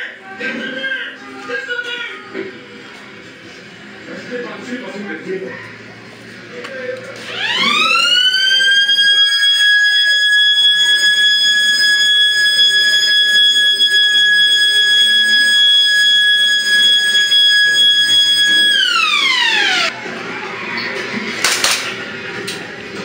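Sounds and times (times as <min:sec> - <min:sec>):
siren-like alarm tone: 0:07.3 - 0:19.9.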